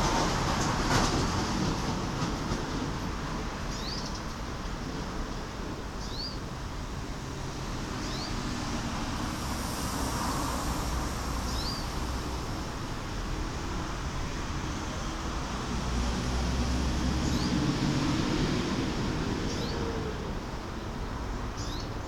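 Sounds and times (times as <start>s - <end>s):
traffic rumble: 0.0s - 22.0s
small birds chirping: 6.0s - 6.4s, 8.0s - 8.4s, 11.5s - 12.0s, 21.6s - 22.0s.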